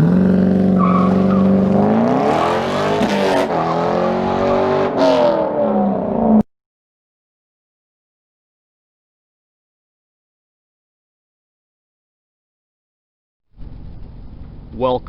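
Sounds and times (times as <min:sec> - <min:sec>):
car engine accelerating hard: 0:00.0 - 0:06.4.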